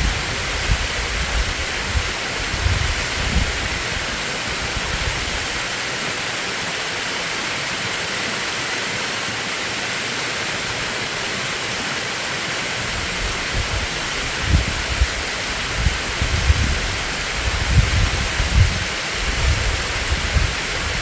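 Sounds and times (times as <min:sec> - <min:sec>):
wind buffeting microphone: 0:00.0 - 0:05.7, 0:12.8 - 0:21.0
stream rushing: 0:00.0 - 0:21.0.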